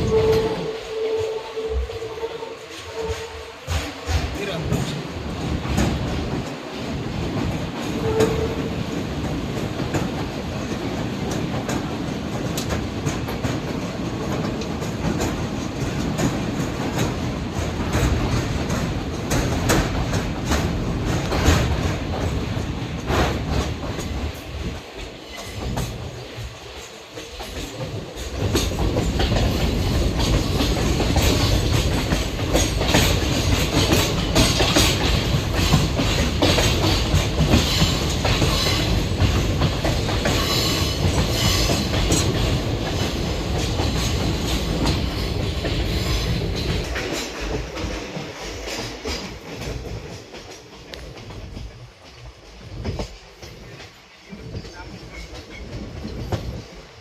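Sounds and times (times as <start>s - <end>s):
train wheels clattering: 0.0s - 57.0s.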